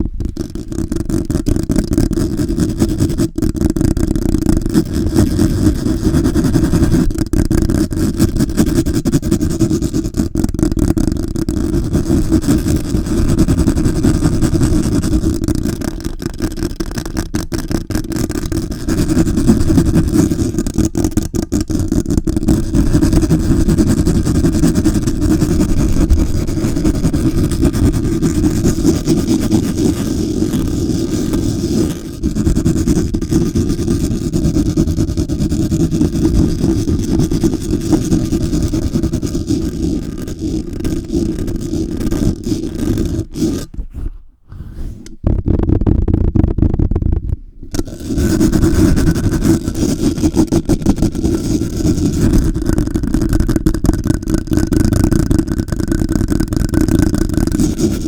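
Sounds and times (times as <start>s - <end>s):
microphone handling rumble: 22.0s - 30.0s, 43.7s - 49.5s.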